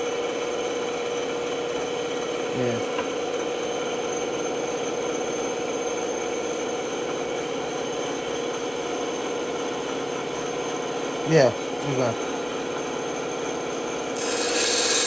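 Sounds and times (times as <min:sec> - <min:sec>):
band saw humming: 0:14.2 - 0:15.0.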